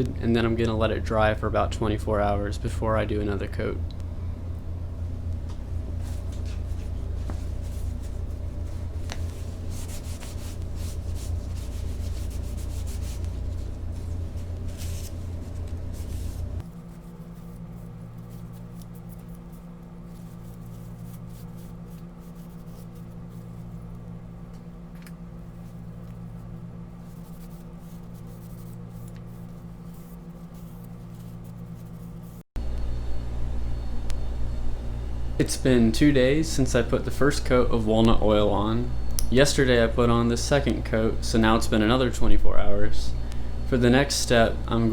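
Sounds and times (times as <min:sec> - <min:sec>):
steady low hum: 0:00.0 - 0:44.9
cloth rubbing wood: 0:06.0 - 0:24.0, 0:25.4 - 0:32.4.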